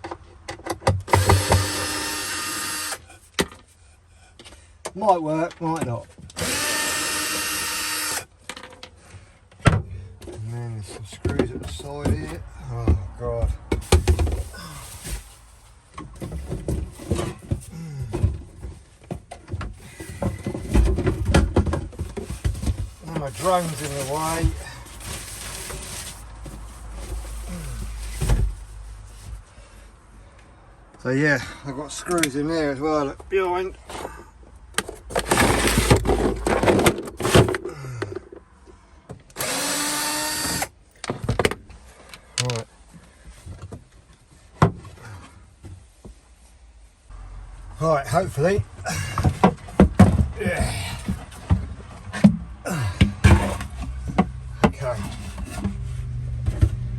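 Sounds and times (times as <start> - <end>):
power drill-driver running: 1.1 - 3.0, 6.4 - 8.3, 39.4 - 40.7
knocks and rattles of handling: 8.4 - 29.4, 33.2 - 39.3, 41.0 - 46.4, 48.4 - 56.9
wooden knocks and clunks: 16.0 - 23.3, 48.6 - 55.8.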